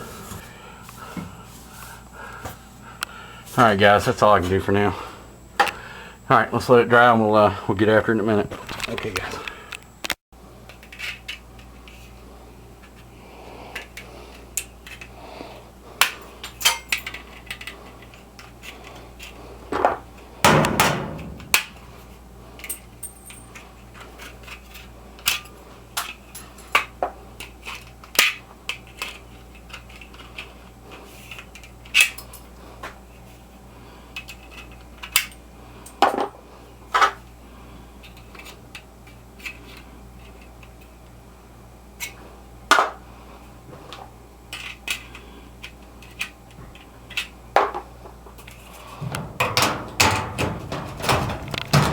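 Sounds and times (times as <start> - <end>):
steady low hum: 0.0 - 23.9, 28.6 - 51.9
tools and metal parts clanking: 16.4 - 26.9, 46.0 - 51.9
scraping thump: 49.0 - 51.9.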